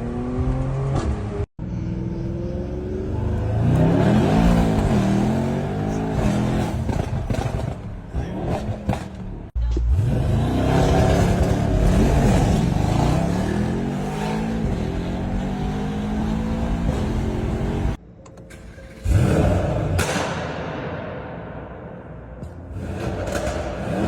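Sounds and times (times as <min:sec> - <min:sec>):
car engine revving hard: 0:02.8 - 0:09.1, 0:09.9 - 0:18.0, 0:22.7 - 0:24.0.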